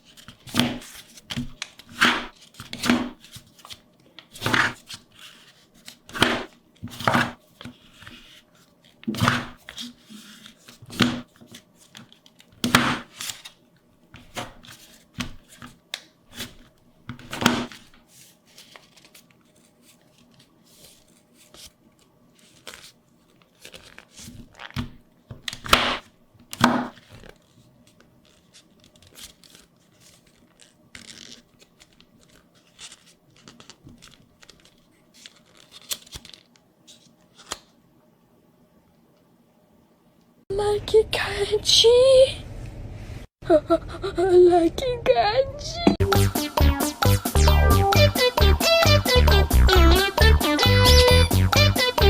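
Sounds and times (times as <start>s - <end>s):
paper tearing and crinkling: 0.0s - 13.6s, 16.3s - 21.8s, 22.4s - 24.9s, 25.5s - 36.5s.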